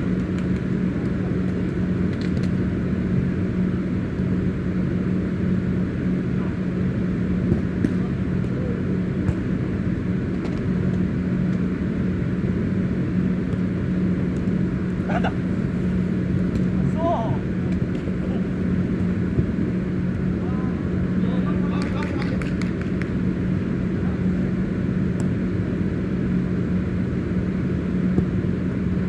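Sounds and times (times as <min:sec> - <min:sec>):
low rumble with hum: 0:00.0 - 0:29.0
distant shout: 0:15.0 - 0:15.5.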